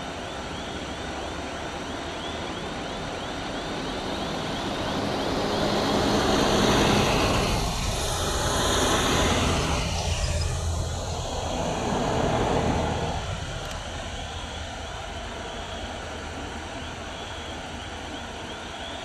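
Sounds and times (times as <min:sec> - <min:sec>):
vehicle passing close by: 0:04.4 - 0:15.0.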